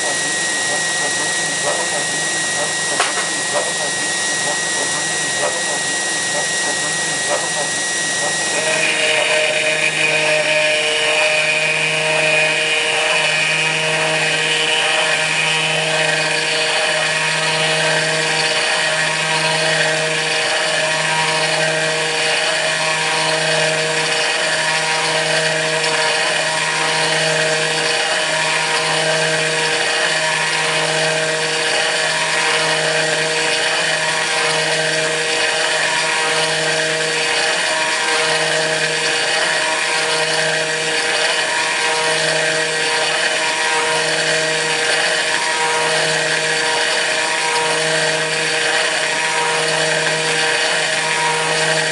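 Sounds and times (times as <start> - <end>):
pulsing low hum: 0.0 - 14.8
router spindle milling metal: 0.0 - 51.9.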